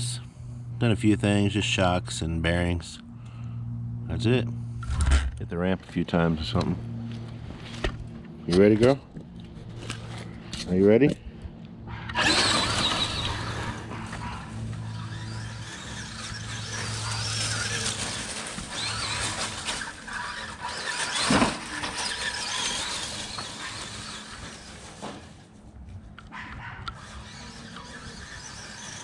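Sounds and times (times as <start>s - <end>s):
wheel and chassis noise: 0.0s - 29.0s
electric motor whining: 12.1s - 25.4s, 26.8s - 29.0s.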